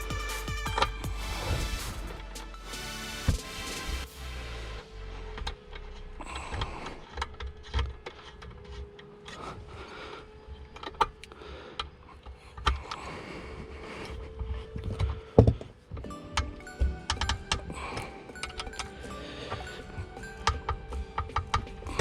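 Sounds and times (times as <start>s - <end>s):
tools clicking and rattling: 10.4s - 22.0s.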